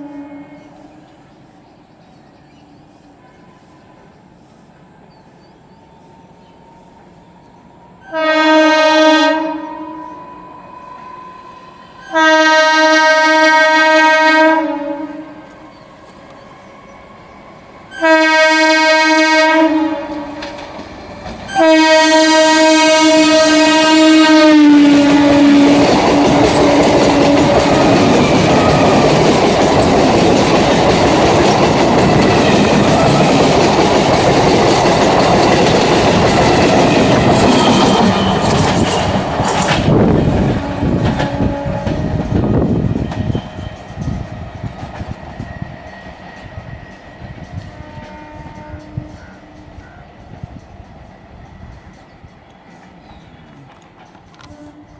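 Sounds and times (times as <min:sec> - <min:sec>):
train horn blasts: 0:00.0 - 0:01.2, 0:03.1 - 0:04.4, 0:06.5 - 0:20.7, 0:21.5 - 0:29.4, 0:36.8 - 0:39.2, 0:39.9 - 0:44.2, 0:47.5 - 0:50.0, 0:54.3 - 0:54.9
train carriages rushing by: 0:00.0 - 0:54.9.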